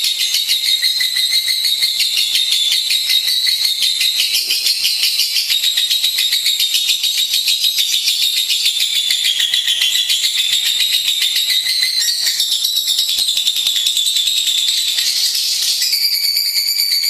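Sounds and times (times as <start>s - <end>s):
lovebird chattering trills: 0.2s - 7.0s, 8.5s - 13.0s.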